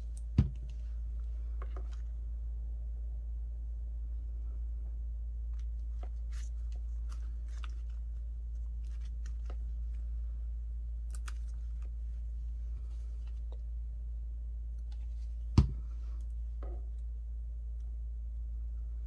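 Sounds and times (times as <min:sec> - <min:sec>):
steady low hum: 0:00.0 - 0:19.0
paper crinkling: 0:05.9 - 0:09.8.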